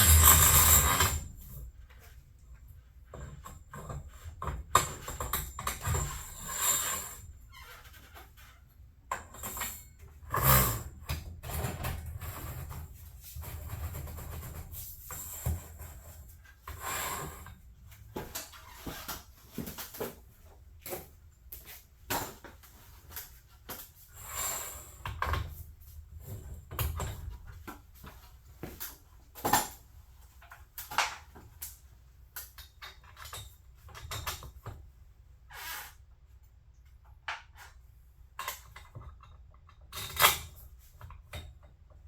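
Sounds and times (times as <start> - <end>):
short scraping sounds: 0.0 - 1.3, 35.5 - 36.0.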